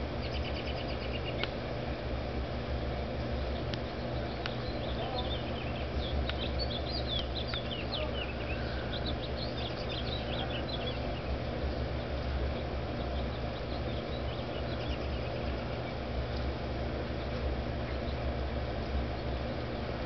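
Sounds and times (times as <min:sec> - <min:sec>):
small birds twittering: 0:00.0 - 0:20.0
steady low hum: 0:00.0 - 0:20.0.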